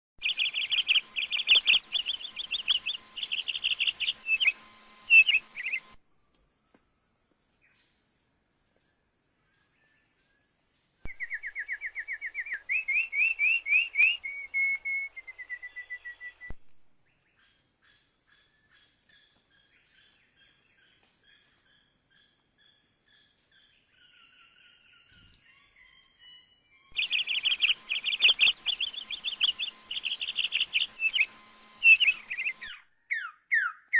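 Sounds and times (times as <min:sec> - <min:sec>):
birds chirping: 0:00.2 - 0:06.0, 0:11.1 - 0:16.5, 0:24.0 - 0:33.8
high insect drone: 0:00.2 - 0:32.8.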